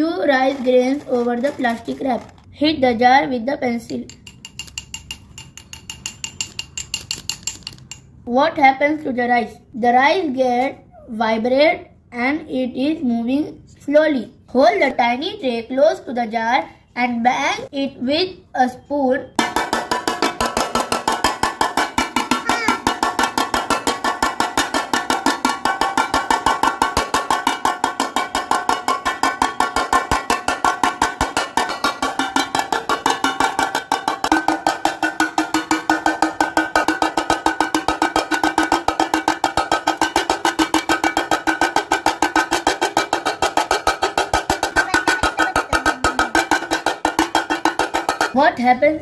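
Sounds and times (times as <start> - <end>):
spoon striking metal tray: 3.9 - 8.1, 19.4 - 48.4.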